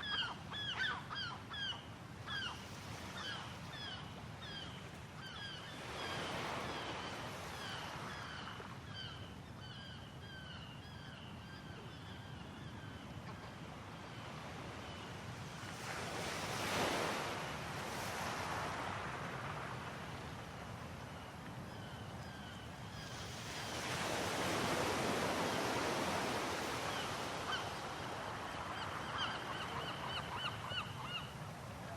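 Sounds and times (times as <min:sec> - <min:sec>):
sea waves washing onto shore: 0:23.1 - 0:29.5.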